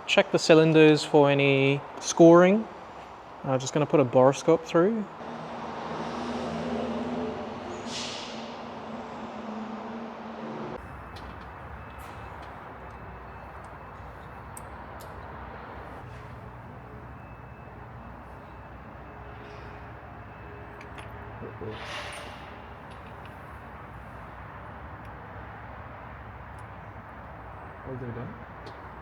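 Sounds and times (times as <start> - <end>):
brief hiss: 7.8 - 8.5.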